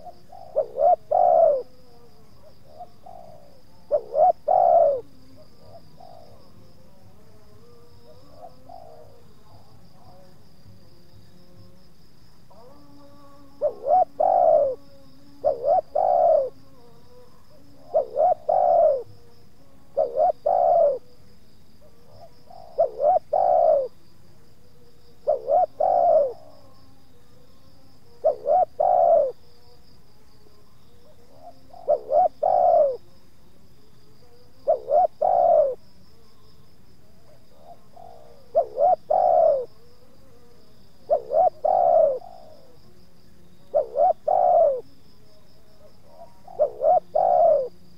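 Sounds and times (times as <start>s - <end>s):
dove cooing: 0.0s - 7.3s, 7.9s - 10.3s, 12.5s - 19.3s, 19.9s - 21.2s, 21.8s - 24.0s, 25.2s - 26.8s, 28.2s - 29.6s, 31.0s - 33.2s, 34.6s - 35.8s, 37.2s - 40.4s, 41.0s - 43.0s, 43.6s - 44.9s, 45.8s - 47.8s
high insect trill: 0.0s - 47.9s.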